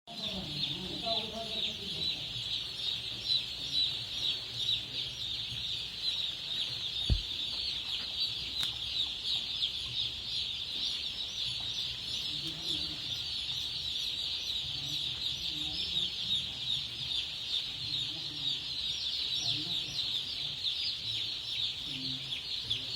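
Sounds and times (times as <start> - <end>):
chickens cheeping: 0.1 - 22.9
low thump: 7.1 - 7.3.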